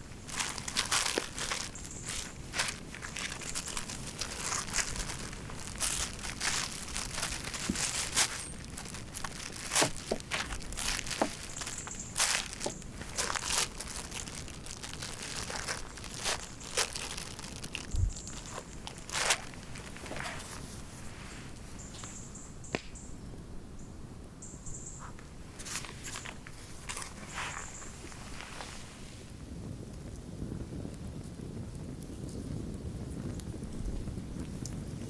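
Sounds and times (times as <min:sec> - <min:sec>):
footsteps crunching in snow: 0:00.0 - 0:22.2, 0:25.6 - 0:29.2.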